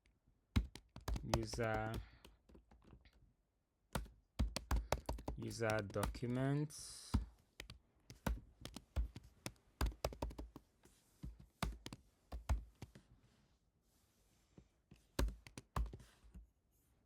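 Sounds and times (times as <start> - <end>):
typing on computer keyboard: 0.6 - 3.1, 4.0 - 6.4, 7.6 - 10.6.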